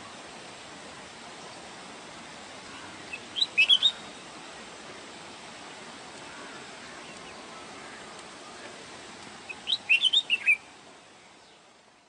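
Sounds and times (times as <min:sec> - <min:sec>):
background hiss: 0:00.0 - 0:12.0
bird whistled song: 0:03.1 - 0:04.1, 0:09.5 - 0:10.7.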